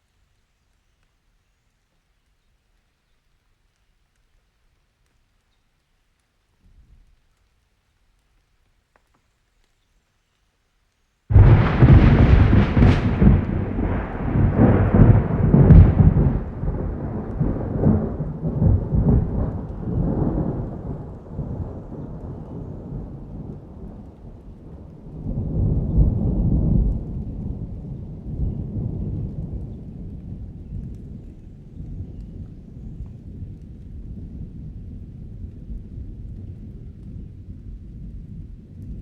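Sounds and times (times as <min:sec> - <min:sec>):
rain: 0:00.0 - 0:39.0
thunder rumbling and cracking: 0:11.3 - 0:39.0.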